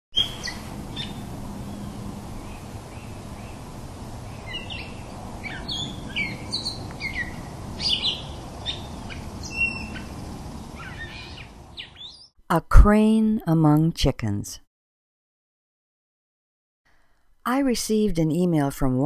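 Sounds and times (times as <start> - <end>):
small birds chirping: 0.1 - 12.4
background hiss: 0.2 - 12.0.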